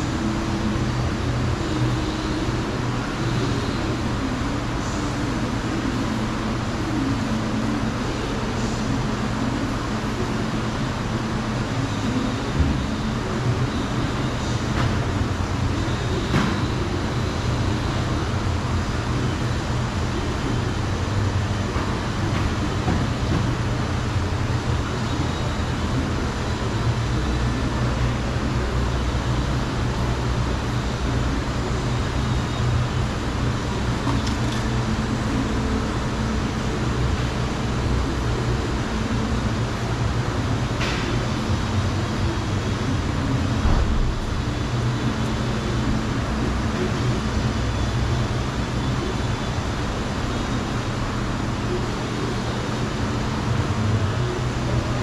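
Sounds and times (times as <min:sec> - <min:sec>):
mechanical hum with hiss: 0:00.0 - 0:55.0.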